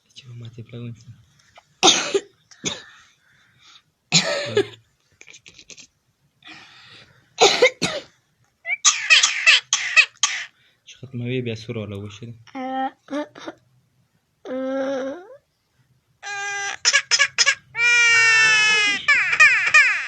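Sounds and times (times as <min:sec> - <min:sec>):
person coughing harshly: 0:01.8 - 0:02.9, 0:04.1 - 0:04.8, 0:07.4 - 0:08.1.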